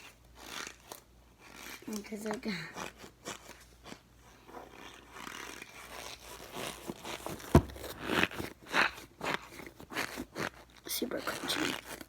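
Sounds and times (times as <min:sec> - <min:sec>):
stress ball crunching: 0:00.0 - 0:10.8.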